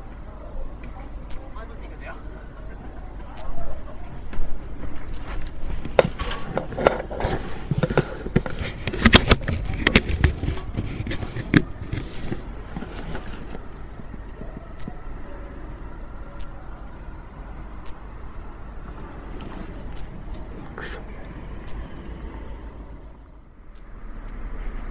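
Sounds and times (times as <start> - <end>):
steady low rumble: 0.0 - 24.9.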